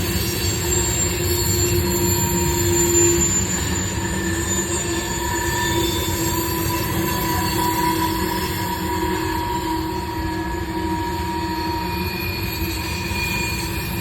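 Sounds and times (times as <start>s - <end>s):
train cars rumbling on track: 0.0s - 14.0s
wheels squealing on rails: 0.0s - 14.0s.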